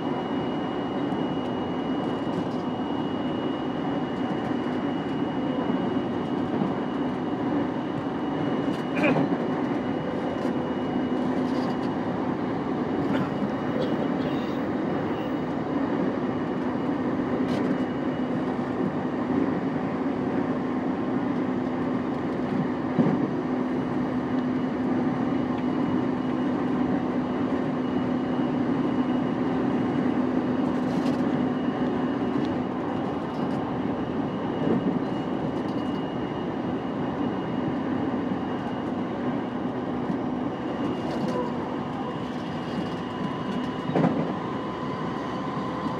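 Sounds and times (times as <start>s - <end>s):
train wheels rumbling on rail: 19.6s - 24.6s, 37.8s - 45.9s.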